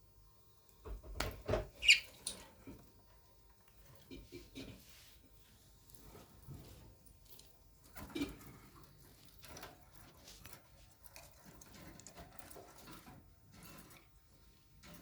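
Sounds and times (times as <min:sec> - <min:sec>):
faint taps and rustles: 0:00.8 - 0:14.1.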